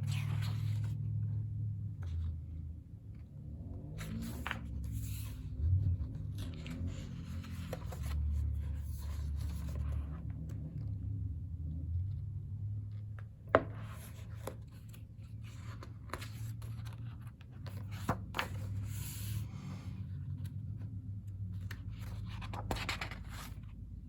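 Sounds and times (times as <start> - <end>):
pages rustling: 0.0 - 1.2, 4.0 - 10.7, 12.8 - 23.8
low steady hum: 0.0 - 24.0.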